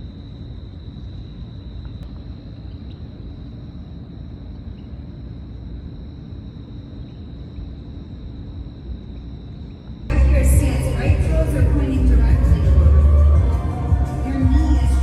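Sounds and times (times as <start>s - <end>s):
low outdoor rumble: 0.0s - 15.0s
high-pitched tone: 10.1s - 15.0s.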